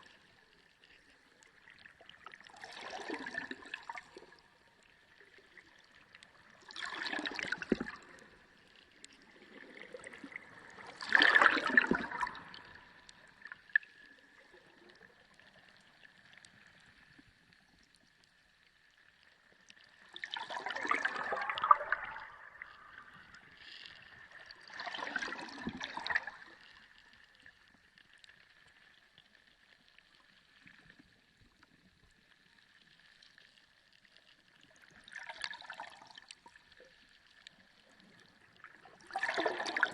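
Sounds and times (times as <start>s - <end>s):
water gurgling underwater: 1.5s - 17.1s, 19.9s - 28.0s, 34.6s - 39.9s.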